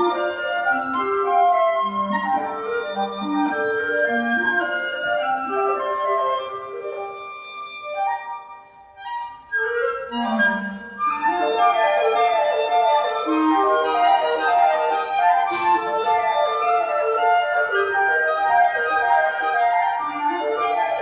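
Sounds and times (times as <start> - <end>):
woodwind trio playing: 0.0 - 21.0
low clarinet note: 15.2 - 16.3.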